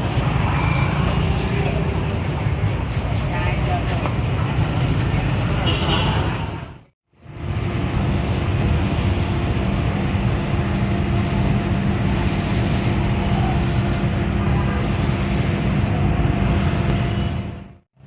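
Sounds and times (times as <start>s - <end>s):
truck engine rumbling: 6.7s - 17.8s.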